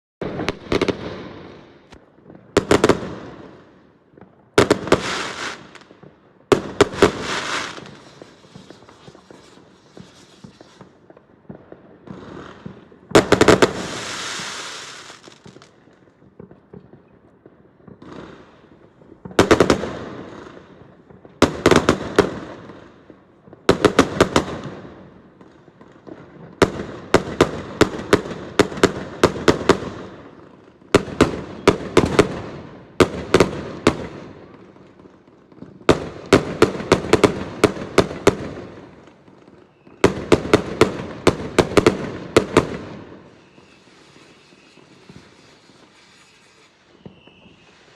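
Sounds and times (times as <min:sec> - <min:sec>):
fireworks bangs and crackles: 0:00.2 - 0:47.9
firework hiss: 0:04.8 - 0:05.8, 0:06.8 - 0:11.1, 0:12.3 - 0:15.7, 0:43.3 - 0:47.9.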